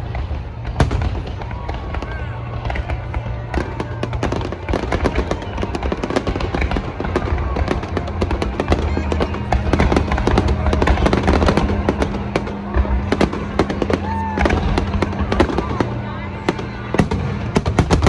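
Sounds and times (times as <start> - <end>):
fireworks bursting and crackling: 0.0 - 18.0
music playing: 0.1 - 18.0.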